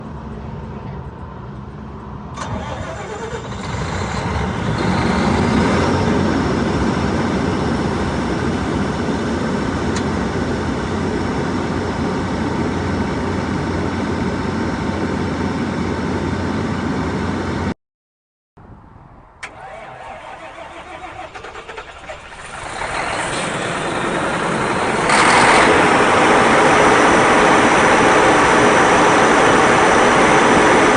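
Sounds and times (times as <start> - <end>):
diesel generator starting up: 0.0 - 17.7, 19.4 - 30.9.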